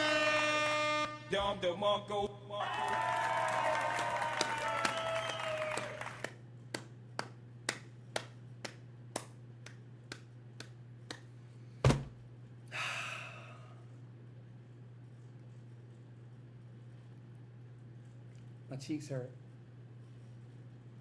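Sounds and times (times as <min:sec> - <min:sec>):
loud thump: 0:11.8 - 0:12.2
breathy exhale: 0:12.7 - 0:13.9.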